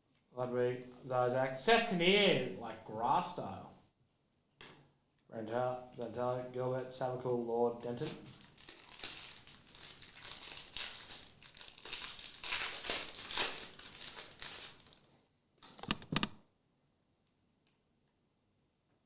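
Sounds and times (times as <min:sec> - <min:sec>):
foil wrapper crinkling: 0:07.8 - 0:15.1.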